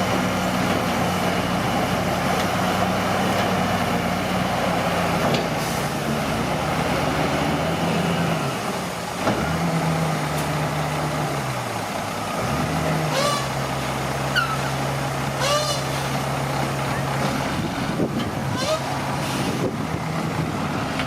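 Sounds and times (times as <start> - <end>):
bulldozer diesel engine running: 0.0 - 21.0
short squeaks: 14.3 - 14.7.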